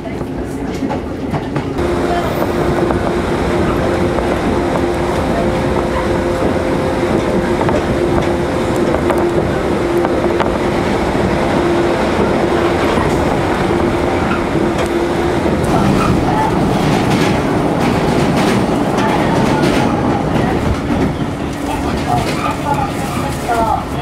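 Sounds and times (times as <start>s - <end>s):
train wheels rumbling on rail: 0.0s - 24.0s
steady tone: 1.8s - 18.4s.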